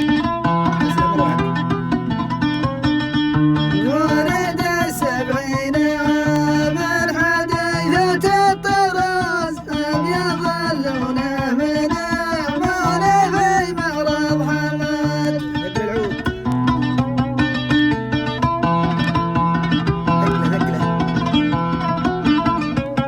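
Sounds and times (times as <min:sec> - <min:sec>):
plucked strings and bass: 0:00.0 - 0:23.0
man singing: 0:00.8 - 0:01.6, 0:03.8 - 0:16.6, 0:20.2 - 0:20.9.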